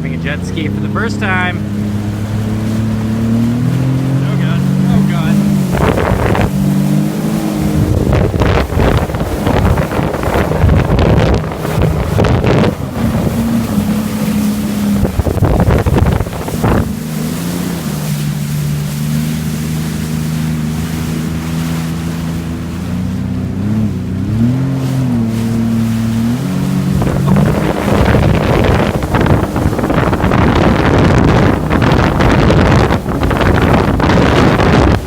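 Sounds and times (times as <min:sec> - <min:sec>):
jet ski engine humming: 0:00.0 - 0:35.0
rushing water: 0:00.0 - 0:35.0
wind on microphone: 0:00.0 - 0:35.0.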